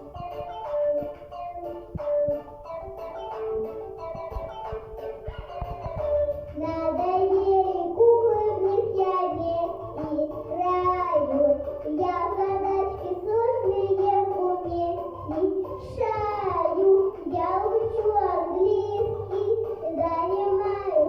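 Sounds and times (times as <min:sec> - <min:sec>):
backing track with bass line: 0:00.0 - 0:21.0
girl singing: 0:00.0 - 0:21.0.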